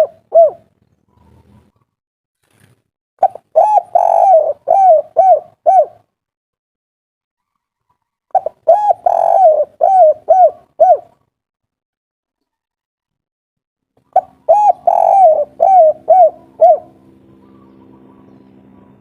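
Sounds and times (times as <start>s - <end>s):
dove cooing: 0.0s - 1.8s, 3.2s - 6.1s, 7.4s - 11.2s, 14.0s - 19.0s.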